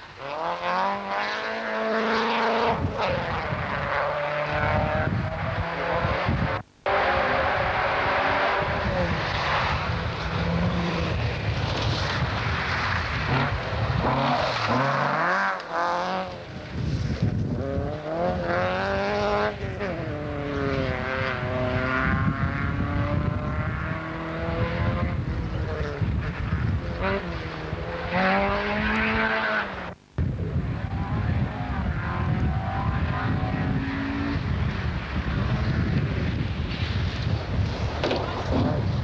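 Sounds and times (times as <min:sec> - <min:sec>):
car driving on gravel: 0:00.0 - 0:39.0
rally car engine revving: 0:00.0 - 0:39.0.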